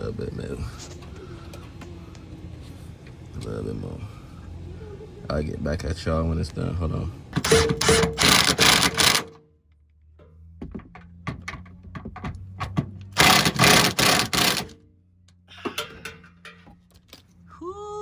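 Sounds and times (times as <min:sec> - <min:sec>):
rapid mechanical rattling: 0:07.3 - 0:09.4, 0:11.1 - 0:14.8
tool clicks and knocks: 0:07.4 - 0:09.4, 0:10.2 - 0:17.1.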